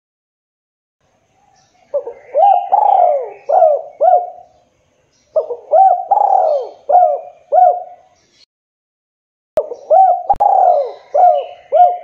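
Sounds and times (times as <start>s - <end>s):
dove cooing: 1.8s - 4.6s, 5.3s - 8.2s, 9.6s - 12.0s.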